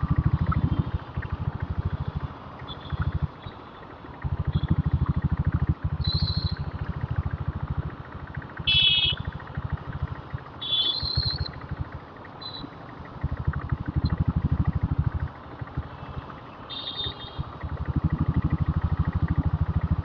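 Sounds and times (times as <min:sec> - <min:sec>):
motorcycle engine knocking: 0:00.0 - 0:16.0, 0:16.7 - 0:20.0
high-pitched horn toots: 0:08.7 - 0:09.2.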